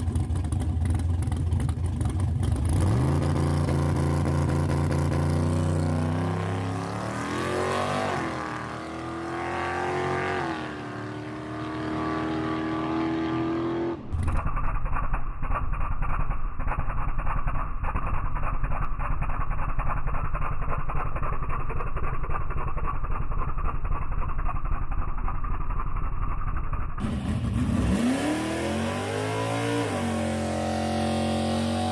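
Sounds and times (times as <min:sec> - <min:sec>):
choppy engine at low speed: 0:00.0 - 0:12.6, 0:14.0 - 0:31.9
drag race engine revving: 0:02.4 - 0:17.6, 0:27.0 - 0:31.9.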